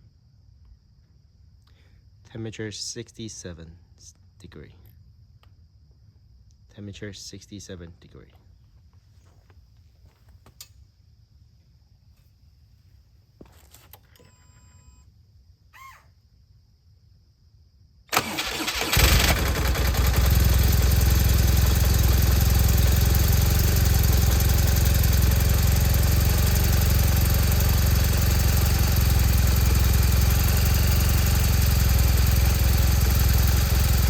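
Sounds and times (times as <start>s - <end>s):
starter cranking: 18.1s - 20.9s
motorcycle engine idling: 19.0s - 34.0s.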